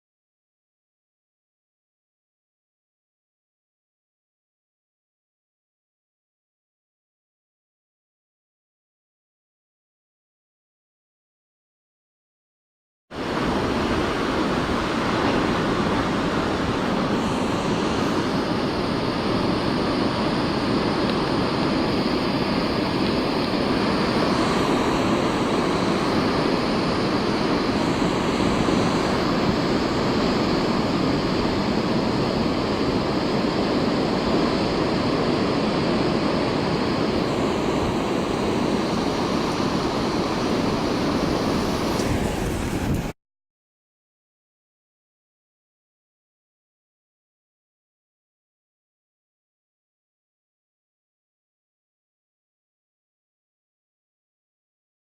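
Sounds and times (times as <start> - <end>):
ocean waves breaking: 13.2 - 43.1.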